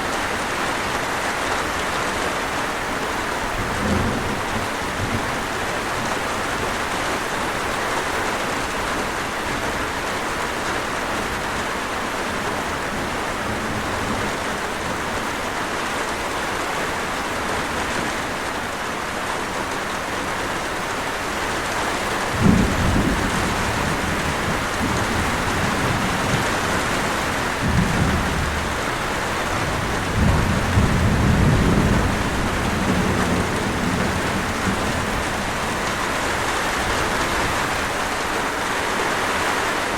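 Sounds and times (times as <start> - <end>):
steady rain falling: 0.0 - 39.9
thunder rumbling: 3.4 - 7.0, 22.2 - 38.6.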